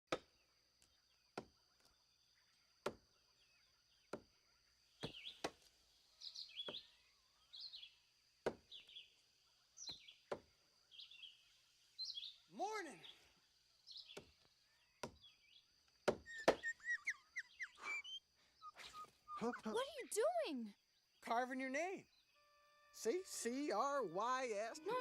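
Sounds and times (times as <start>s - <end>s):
birds chirping: 0.3s - 25.0s
knife chopping tree bark: 8.4s - 8.7s, 14.1s - 16.7s
faint steady high tone: 22.3s - 25.0s.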